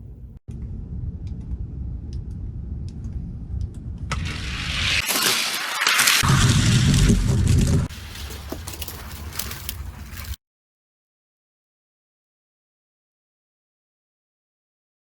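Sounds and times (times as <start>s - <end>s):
toy cars rolling on a track: 4.1s - 6.2s.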